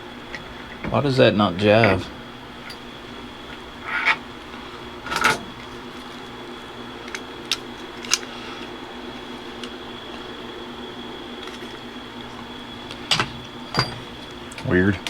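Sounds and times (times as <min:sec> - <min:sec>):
electric fans humming: 0:00.0 - 0:15.0
small parts clicking together: 0:07.0 - 0:08.3.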